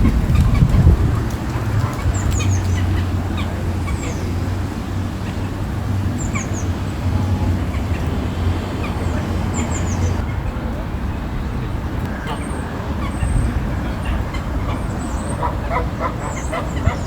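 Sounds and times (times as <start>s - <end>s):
ducks calling: 0.0s - 10.2s, 14.0s - 17.0s
geese honking: 0.0s - 10.2s, 14.3s - 17.0s.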